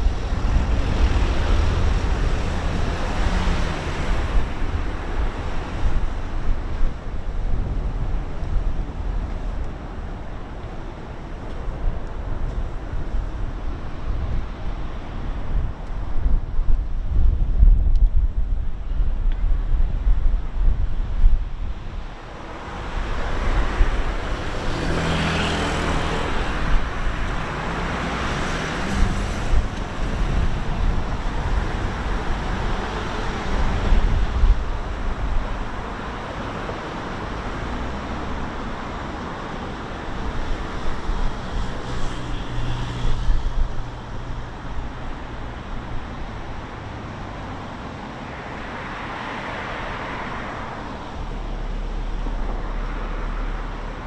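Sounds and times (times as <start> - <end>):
vehicles passing: 0.0 - 54.0
heavy vehicle engine drone: 18.6 - 54.0.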